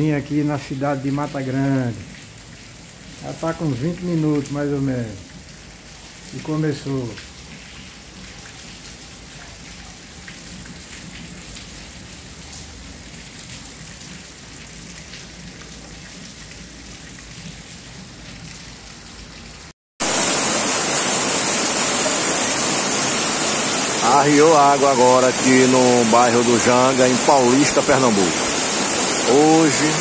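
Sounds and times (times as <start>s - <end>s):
heavy downpour hiss: 0.0s - 7.4s, 20.0s - 30.0s
rain on corrugated roof: 0.0s - 30.0s.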